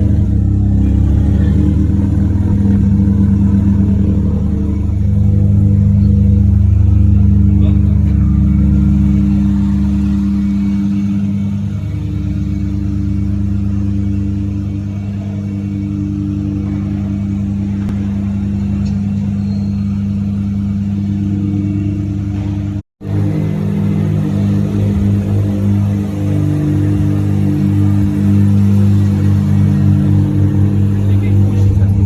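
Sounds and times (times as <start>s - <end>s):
rotary engine running: 0.0s - 32.0s.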